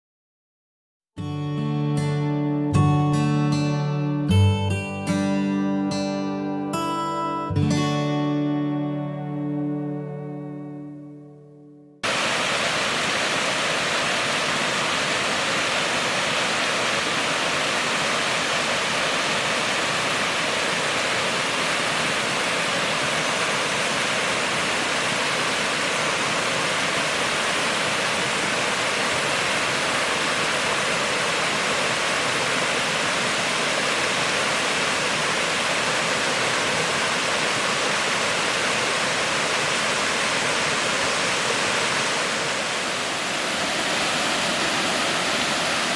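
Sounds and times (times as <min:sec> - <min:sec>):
waterfall rushing: 0:12.0 - 0:45.9.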